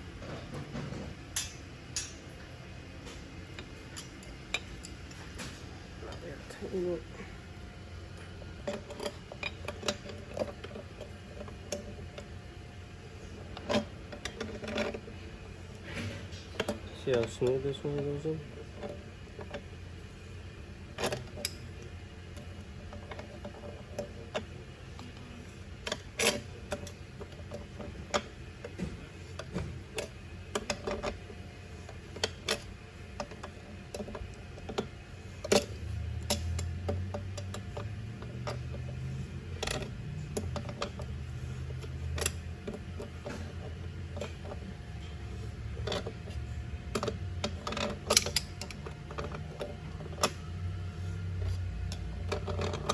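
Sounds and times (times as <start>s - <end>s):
metal clicks and knocks: 45.8s - 50.5s, 51.4s - 52.9s.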